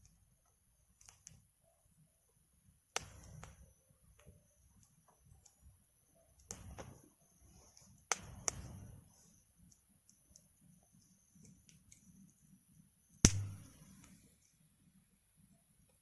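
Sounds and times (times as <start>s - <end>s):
wood fire crackling and popping: 13.3s - 13.9s.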